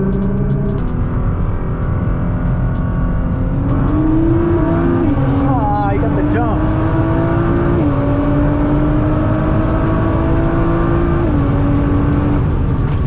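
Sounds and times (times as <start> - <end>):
car engine at full throttle: 0.0 - 13.0
road rumble: 0.0 - 13.0.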